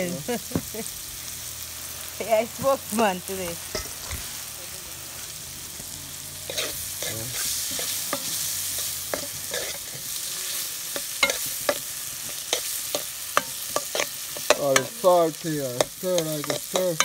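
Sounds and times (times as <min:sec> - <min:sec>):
vegetables sizzling in a pot: 0:00.0 - 0:17.0
metal spoon scraping a pot: 0:06.5 - 0:14.9.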